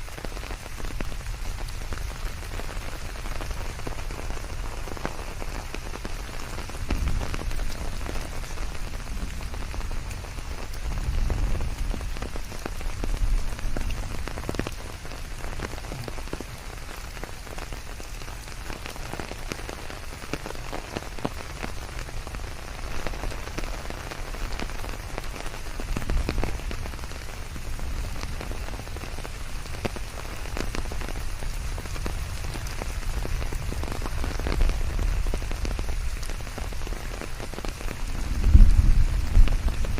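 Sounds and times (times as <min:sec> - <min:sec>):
rain drops pattering: 0:00.0 - 0:39.9
low rumble: 0:38.2 - 0:39.9.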